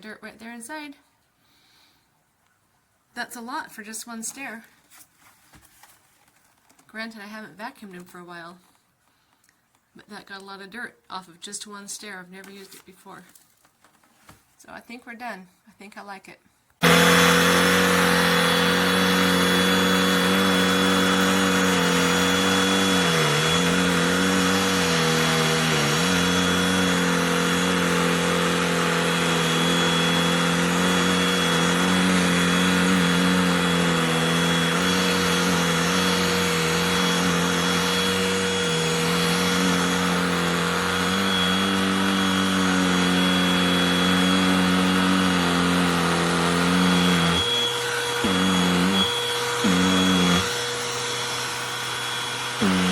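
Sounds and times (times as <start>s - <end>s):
handheld vacuum motor whine: 16.8s - 52.9s.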